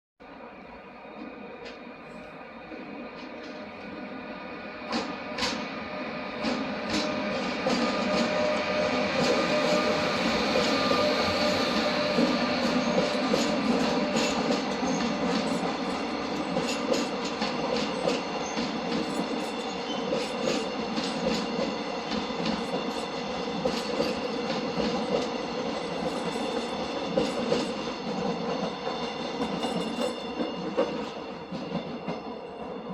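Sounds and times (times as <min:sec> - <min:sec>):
train rail rumble: 0:00.7 - 0:32.9
high wheel squeal: 0:07.0 - 0:15.1.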